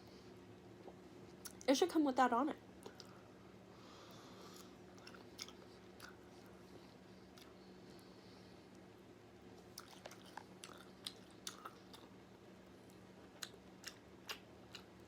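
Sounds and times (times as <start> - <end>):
faint steady hum: 0.0 - 15.0
person chewing food: 4.4 - 7.6, 9.6 - 12.2, 12.8 - 15.0.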